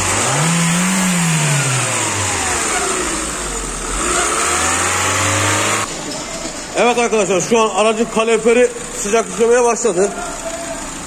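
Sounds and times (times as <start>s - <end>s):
car engine revving: 0.0s - 5.9s.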